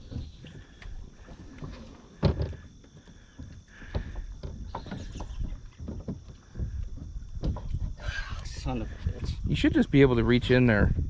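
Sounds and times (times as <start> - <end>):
gear knocking in aluminum boat: 0.0 - 11.0
low wind rumble: 3.6 - 11.0.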